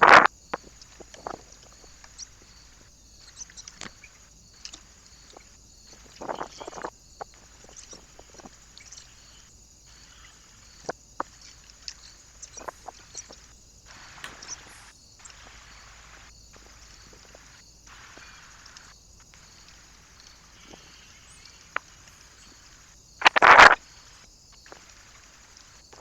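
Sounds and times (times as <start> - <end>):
birds tapping and clicking: 0.0 - 26.0
microphone hiss: 0.0 - 26.0
bird chirps: 1.7 - 6.8, 8.7 - 17.4.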